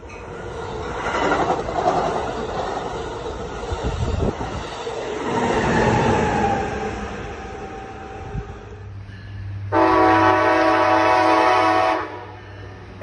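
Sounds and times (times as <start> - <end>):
train cars rushing past: 0.0 - 13.0
locomotive horn chord: 9.7 - 12.4.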